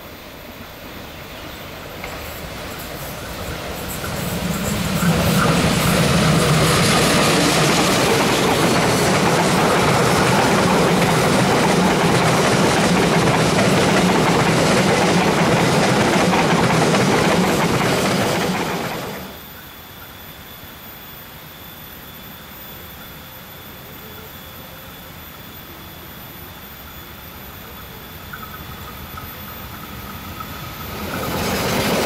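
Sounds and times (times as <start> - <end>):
train rumbling past: 0.0 - 19.6, 26.7 - 32.0
wheels clattering over rails: 3.4 - 19.3.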